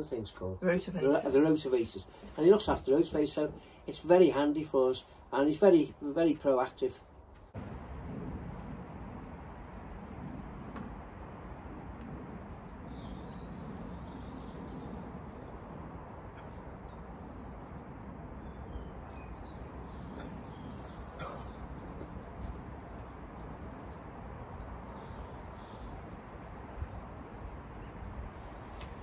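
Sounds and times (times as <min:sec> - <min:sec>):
small birds chirping: 0:00.0 - 0:29.0
low background rumble: 0:07.6 - 0:28.7.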